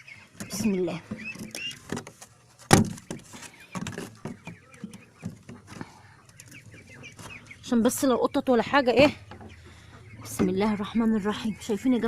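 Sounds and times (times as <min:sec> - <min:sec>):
faint bird calls: 0:00.0 - 0:02.0, 0:03.0 - 0:08.2, 0:09.0 - 0:12.0.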